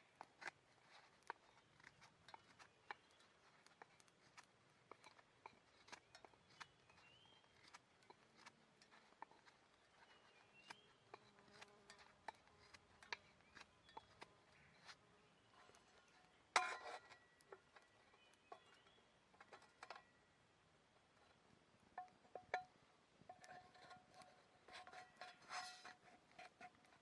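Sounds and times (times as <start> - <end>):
small wood fire crackling: 0.0 - 27.0.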